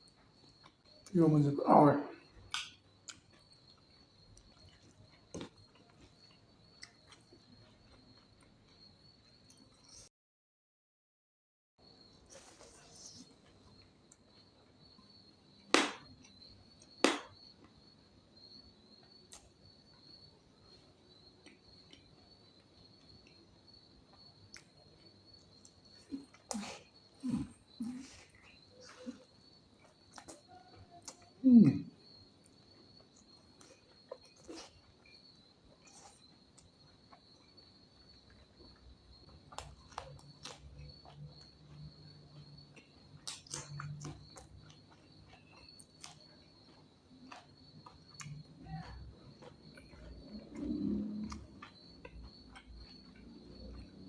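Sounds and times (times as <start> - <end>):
mouth clicks and smacks chewing: 2.4 - 8.6, 19.3 - 19.6, 24.5 - 31.3, 32.4 - 37.6, 38.2 - 54.0.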